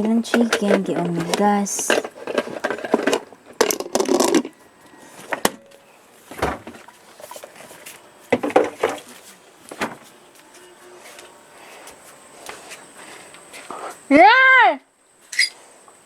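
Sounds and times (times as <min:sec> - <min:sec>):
knocks and clattering: 0:00.0 - 0:04.6, 0:08.3 - 0:09.1.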